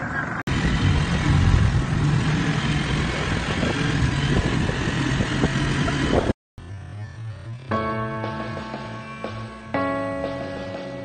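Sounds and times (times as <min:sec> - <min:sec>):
street noise: 0:00.0 - 0:11.0
motorcycle engine running: 0:00.5 - 0:07.8.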